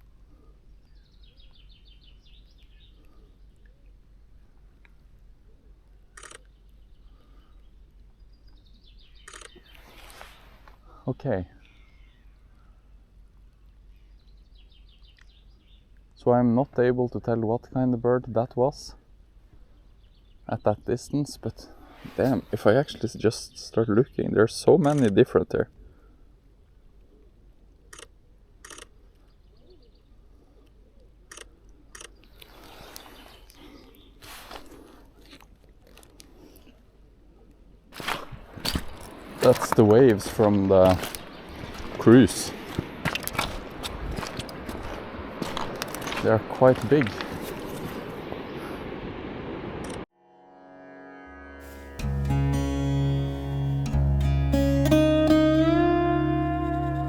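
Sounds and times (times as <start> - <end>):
faint bird chirps: 11.6 - 13.0
faint distant bird calls: 11.6 - 15.9
waves rushing: 38.0 - 49.8.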